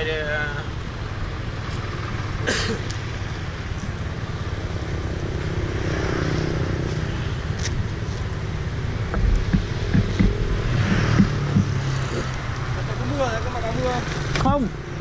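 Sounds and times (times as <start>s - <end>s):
low thumps: 9.0s - 12.5s.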